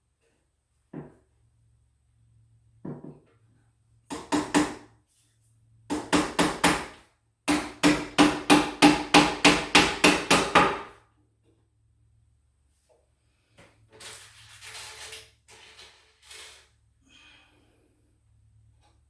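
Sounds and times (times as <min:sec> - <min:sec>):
hammer driving nails into wood: 0:04.1 - 0:04.9, 0:05.9 - 0:10.9.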